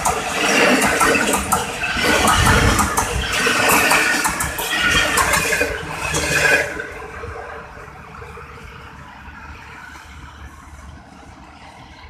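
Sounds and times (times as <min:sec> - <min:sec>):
wheels clattering over track: 0:00.0 - 0:07.0
train rushing past: 0:00.0 - 0:12.0.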